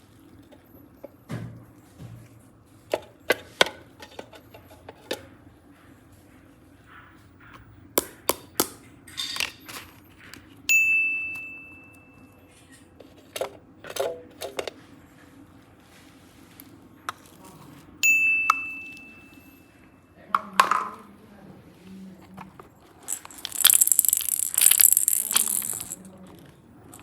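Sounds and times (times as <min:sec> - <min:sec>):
small hard objects clicking: 0:23.1 - 0:26.1.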